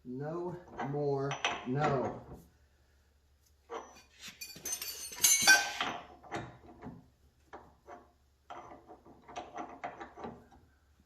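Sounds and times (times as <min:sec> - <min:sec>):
metal tools clattering and clinking: 0:03.7 - 0:06.0.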